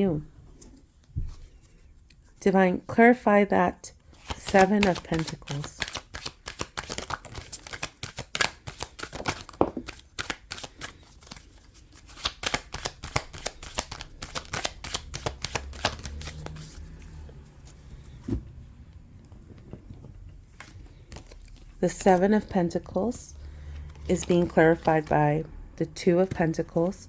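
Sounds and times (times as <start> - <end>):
cards being shuffled: 4.1 - 18.3, 20.5 - 22.5, 23.7 - 25.2.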